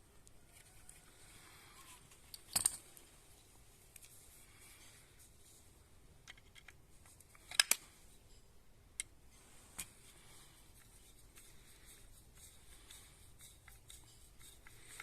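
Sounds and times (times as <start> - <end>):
tools and parts clicking: 2.1 - 3.1, 6.2 - 9.2, 13.4 - 15.0.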